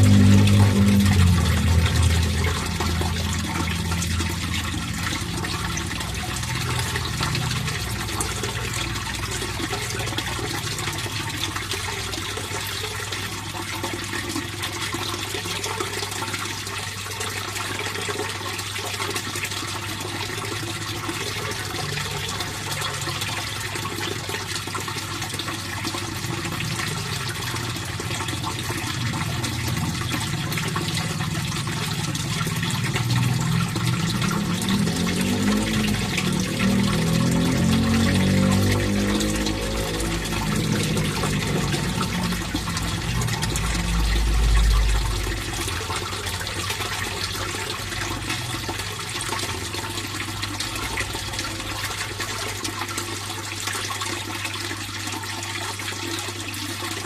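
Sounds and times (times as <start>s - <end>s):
low hum: 0.0s - 9.4s, 26.4s - 48.0s
water flowing and splashing: 0.0s - 57.0s.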